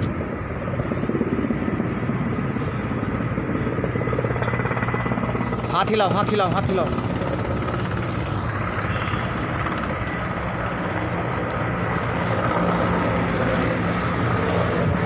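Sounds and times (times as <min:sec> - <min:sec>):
helicopter rotor drone: 0:00.0 - 0:15.0.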